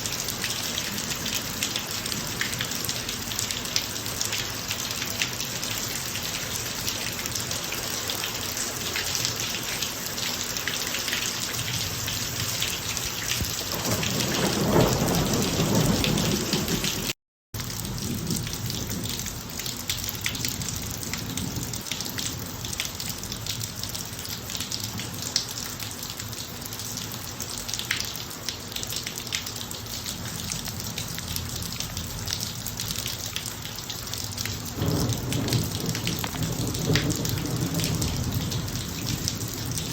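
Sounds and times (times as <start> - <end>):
rain falling on driveway: 0.0 - 39.9
low rumble of thunder: 13.4 - 17.1, 17.7 - 19.4, 20.2 - 22.3, 34.7 - 39.9.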